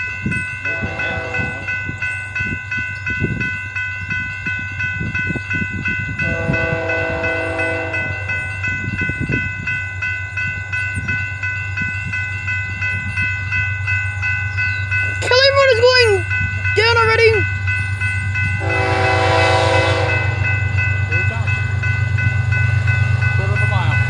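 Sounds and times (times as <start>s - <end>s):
railroad crossing bell ringing: 0.0s - 24.0s
distant train horn: 0.6s - 1.9s, 6.2s - 8.6s, 18.5s - 21.8s.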